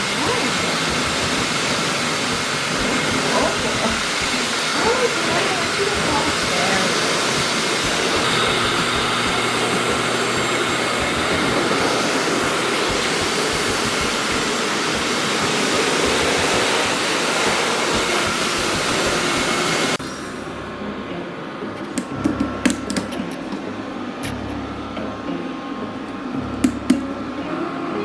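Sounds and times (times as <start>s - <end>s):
pet hair dryer blowing air: 0.0s - 20.0s.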